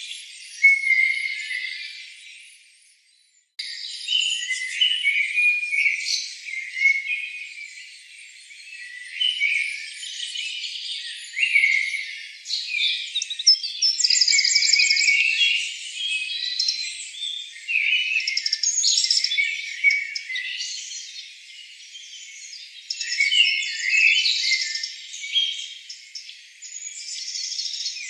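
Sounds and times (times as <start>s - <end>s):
birds chirping and trilling: 0.0s - 28.0s.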